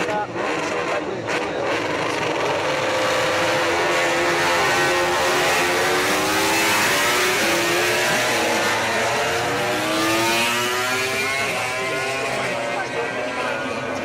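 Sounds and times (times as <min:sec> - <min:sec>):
racing motorcycle engines at high revs: 0:00.0 - 0:14.0.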